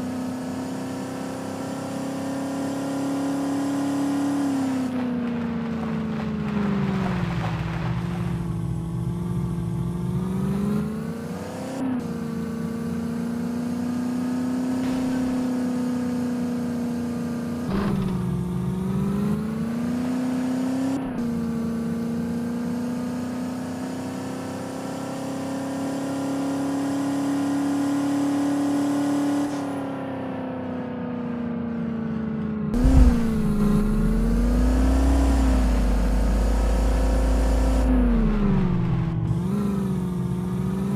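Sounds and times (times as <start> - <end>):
car engine under load: 0.1 - 24.2, 31.8 - 40.9
thump: 17.7 - 18.4, 32.8 - 37.2
low rumble: 32.8 - 39.6.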